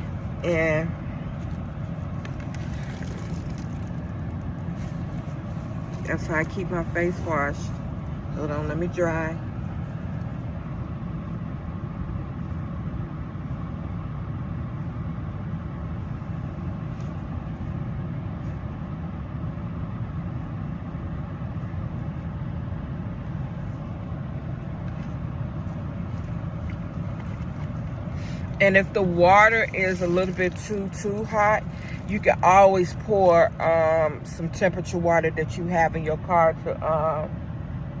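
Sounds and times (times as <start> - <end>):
vehicle engine idling: 0.0 - 38.0.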